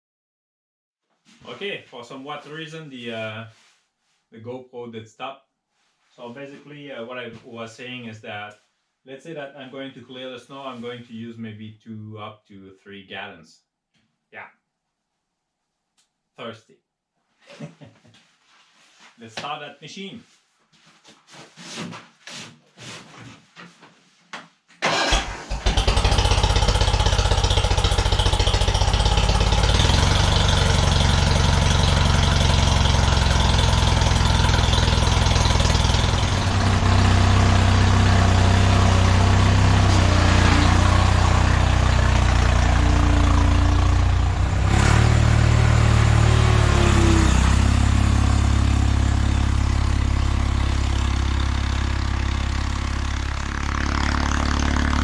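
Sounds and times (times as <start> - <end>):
garden tractor engine starting: 24.8 - 52.4, 53.4 - 55.0.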